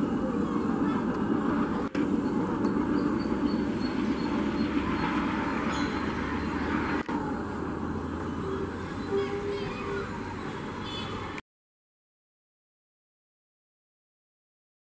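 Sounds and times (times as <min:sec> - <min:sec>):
train coaches rumbling on track: 0:00.0 - 0:11.4.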